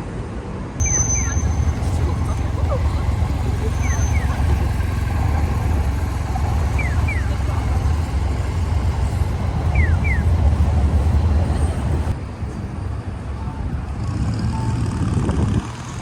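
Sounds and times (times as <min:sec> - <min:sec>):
city street traffic rumble: 0:00.0 - 0:16.0
falling electronic chirps: 0:00.8 - 0:10.8.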